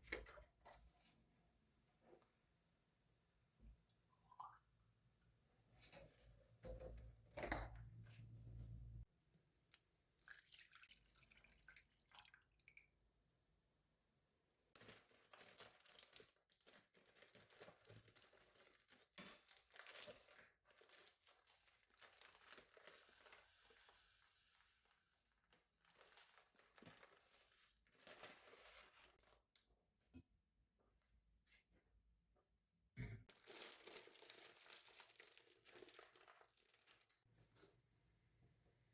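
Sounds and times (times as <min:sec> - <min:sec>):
crinkling and rustling: 0:14.8 - 0:29.7, 0:33.3 - 0:37.3.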